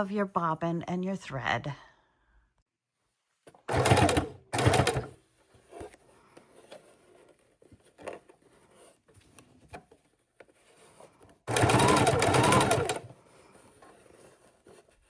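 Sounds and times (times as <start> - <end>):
sewing machine stitching: 3.7 - 5.2, 11.5 - 13.2.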